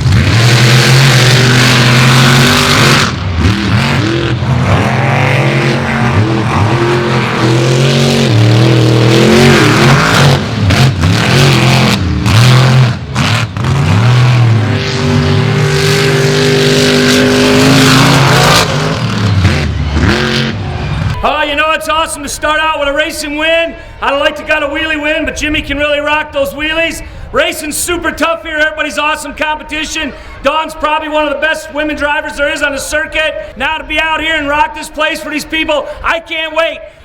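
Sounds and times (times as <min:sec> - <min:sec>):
monster truck engines revving: 0:00.0 - 0:23.4.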